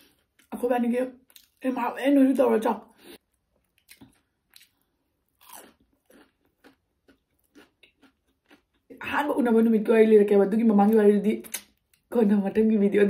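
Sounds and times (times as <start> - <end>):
crunching crispy food: 3.6 - 8.8.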